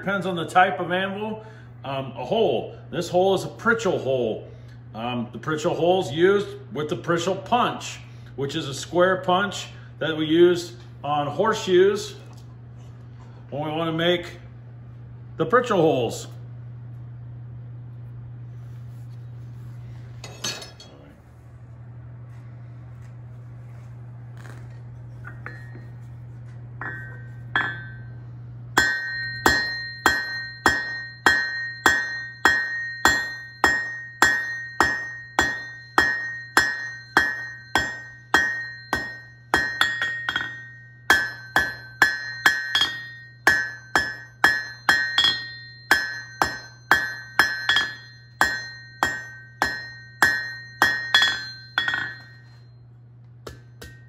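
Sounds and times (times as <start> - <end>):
steady low hum: 0.0 - 54.0
hammer striking an anvil: 20.2 - 20.9, 25.3 - 25.9, 26.8 - 28.2, 28.8 - 52.7, 53.4 - 54.0.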